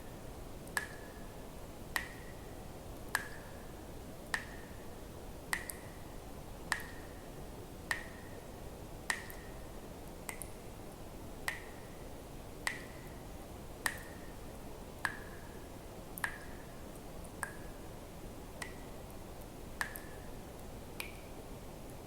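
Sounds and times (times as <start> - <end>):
faint steady hiss: 0.0 - 22.0
water drops plinking into water: 0.7 - 1.2, 1.9 - 2.4, 3.1 - 3.5, 4.3 - 4.7, 5.5 - 6.0, 6.7 - 7.1, 7.9 - 8.3, 9.1 - 9.6, 10.3 - 10.6, 11.4 - 11.8, 12.6 - 13.1, 13.8 - 14.3, 15.0 - 15.4, 16.2 - 16.6, 17.4 - 17.7, 18.6 - 18.9, 19.8 - 20.2, 21.0 - 21.3.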